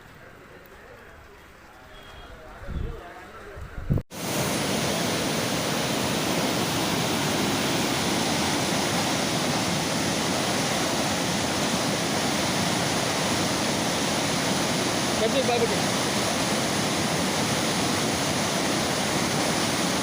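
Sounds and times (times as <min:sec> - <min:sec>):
floodwater rushing: 0:04.1 - 0:20.0.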